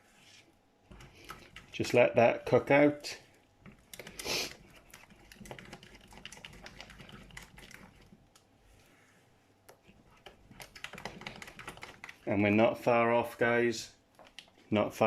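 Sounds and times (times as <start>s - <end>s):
utensil clicking and tapping in pan: 0.9s - 2.0s, 3.6s - 8.5s, 9.7s - 12.3s.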